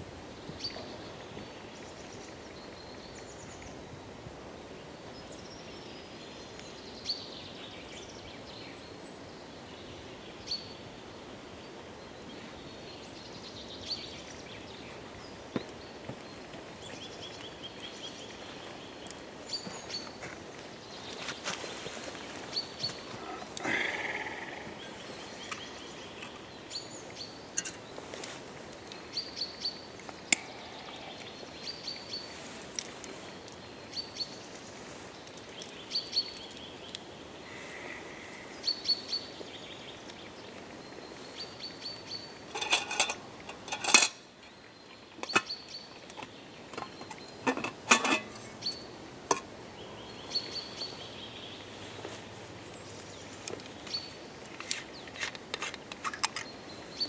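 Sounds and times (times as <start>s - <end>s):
outdoor hiss: 0.0s - 57.0s
small bird calling: 22.4s - 27.8s.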